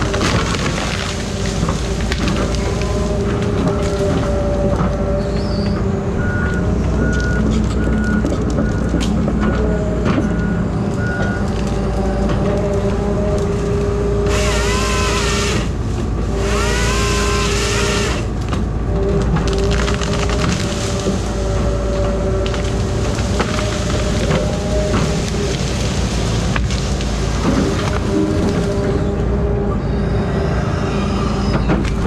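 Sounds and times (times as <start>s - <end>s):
diesel engine droning: 0.0s - 32.0s
reversing alarm beeping: 2.5s - 12.4s.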